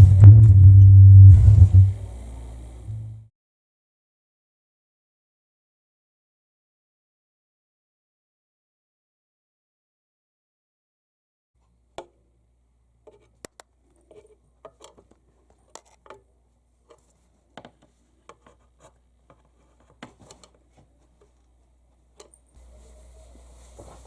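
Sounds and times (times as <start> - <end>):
low steady electrical hum: 0.0 - 3.3, 11.6 - 24.0
handling clicks and rubs: 13.0 - 22.5.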